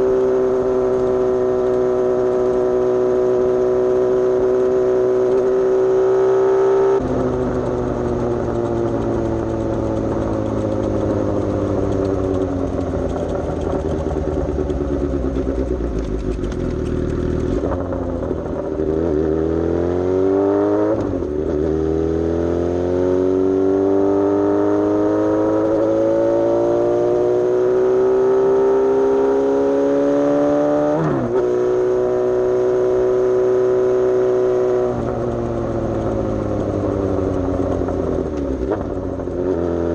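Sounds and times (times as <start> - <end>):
motorcycle gear change: 0.0 - 19.4
motorcycle engine: 0.0 - 39.9.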